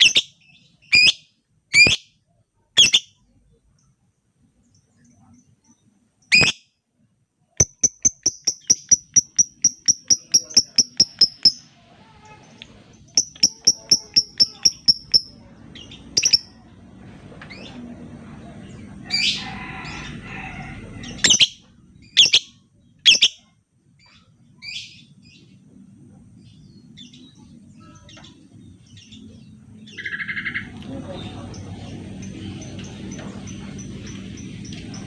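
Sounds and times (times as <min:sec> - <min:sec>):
lovebird chirping: 0:00.0 - 0:03.9, 0:04.6 - 0:06.7, 0:07.6 - 0:12.2, 0:12.9 - 0:16.6, 0:21.1 - 0:25.4
bird chattering call: 0:07.6 - 0:11.7, 0:13.1 - 0:15.4, 0:16.1 - 0:16.6.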